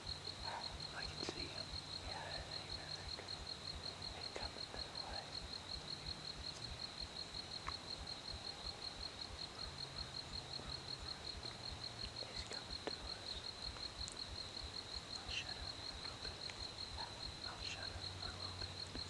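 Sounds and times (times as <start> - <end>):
faint clicks: 7.6 - 7.8, 12.0 - 14.3.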